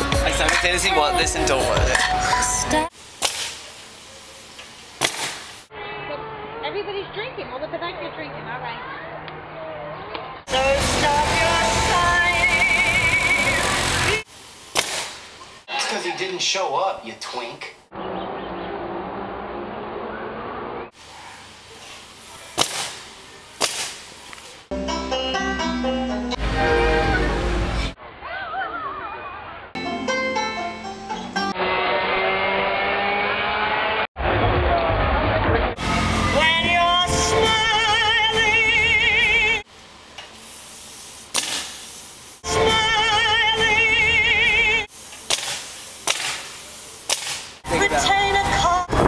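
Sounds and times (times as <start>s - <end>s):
person singing with vibrato: 0.9s - 2.9s, 10.5s - 14.2s, 36.0s - 39.6s, 42.4s - 44.9s
faint hiss: 2.8s - 5.7s, 12.2s - 15.7s, 21.0s - 24.7s, 39.6s - 42.4s, 43.2s - 47.6s
whip cracking: 3.2s - 3.6s, 5.0s - 5.5s, 14.7s - 15.3s, 22.5s - 24.5s, 41.3s - 41.8s, 45.3s - 47.6s.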